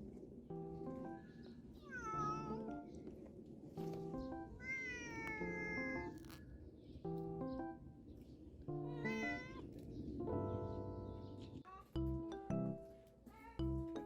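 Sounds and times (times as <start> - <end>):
light background music: 0.5 - 3.0, 3.8 - 6.4, 7.1 - 8.1, 8.7 - 14.0
cat meowing: 1.8 - 2.7, 4.6 - 6.2, 8.8 - 9.7.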